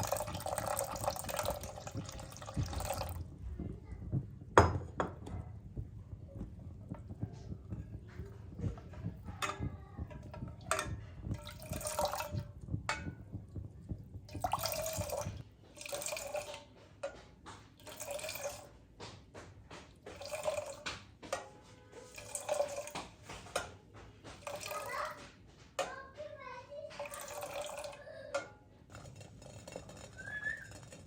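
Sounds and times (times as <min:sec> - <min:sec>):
liquid pouring and splashing: 0:00.0 - 0:03.4, 0:08.7 - 0:18.7, 0:20.1 - 0:21.1, 0:22.0 - 0:23.7, 0:24.4 - 0:25.2, 0:26.9 - 0:28.1.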